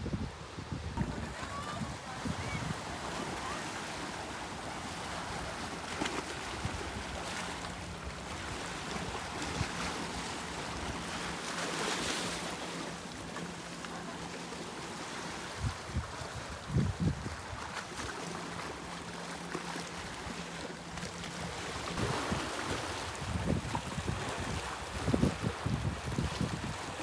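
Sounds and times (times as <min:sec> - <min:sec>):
wind blowing over microphone: 0:00.0 - 0:03.6, 0:15.6 - 0:17.7, 0:22.0 - 0:27.0
sea waves washing on shore: 0:01.0 - 0:27.0.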